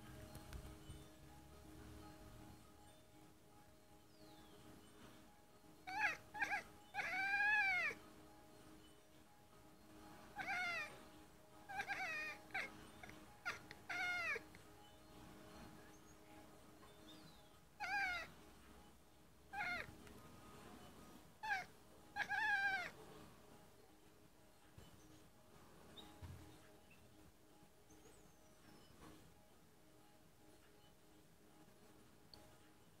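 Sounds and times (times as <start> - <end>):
cat chirping: 5.8 - 8.0, 10.1 - 14.7, 16.8 - 18.5, 19.5 - 20.3, 21.0 - 23.2.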